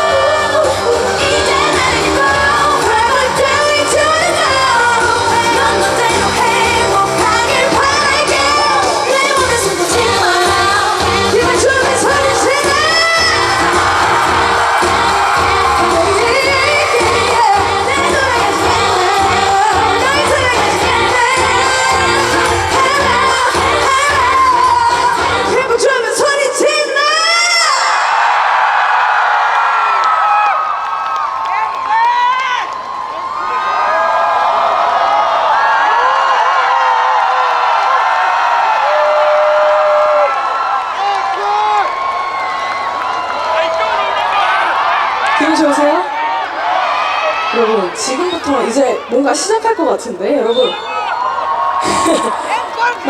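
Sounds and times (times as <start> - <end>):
loud amplified backing music: 0.0 - 26.6, 36.4 - 53.0
woman singing pop song: 0.0 - 27.9.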